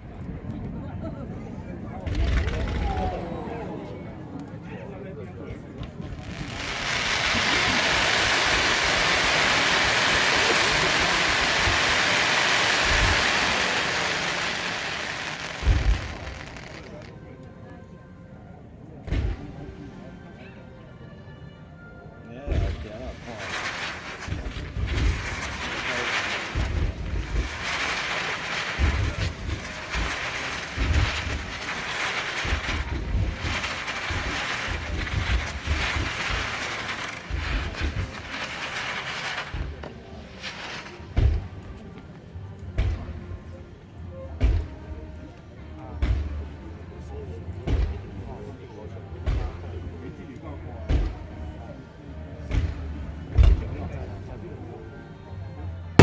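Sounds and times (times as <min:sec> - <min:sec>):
fireworks rushing hiss: 0:06.0 - 0:17.1, 0:22.7 - 0:41.9.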